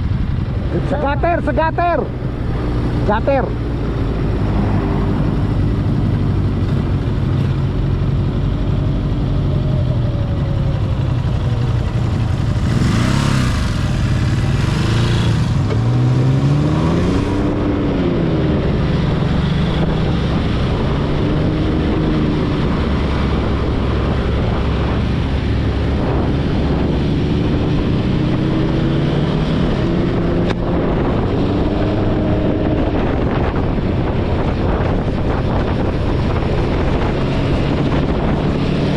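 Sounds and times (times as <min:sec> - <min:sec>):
motorcycle engine revving: 0:00.0 - 0:38.9
rush of noise: 0:00.0 - 0:38.9.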